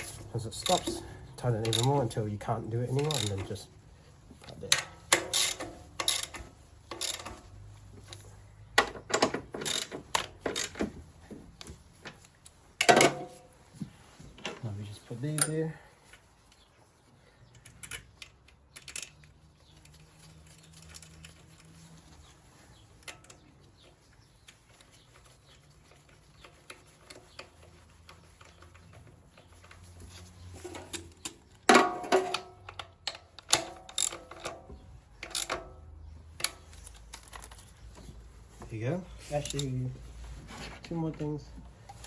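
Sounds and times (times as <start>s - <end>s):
metallic clicks of hand tools: 0.0s - 2.0s, 30.6s - 34.6s, 35.2s - 35.8s.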